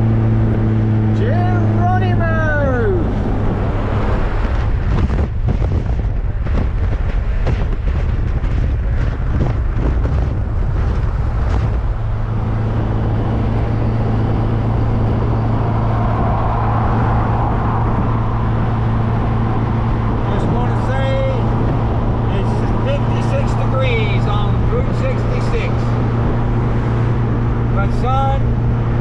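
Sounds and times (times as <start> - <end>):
car engine drone: 0.0 - 29.0
road noise: 0.0 - 29.0
wind buffeting: 0.0 - 29.0.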